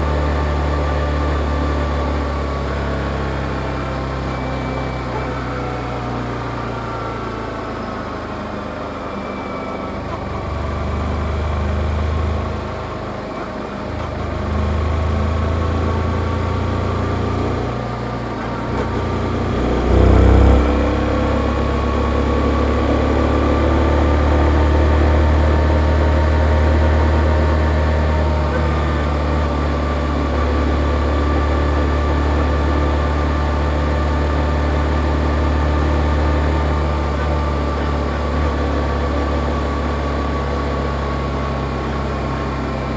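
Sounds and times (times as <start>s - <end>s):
motorcycle engine rising and falling: 16.0s - 32.6s.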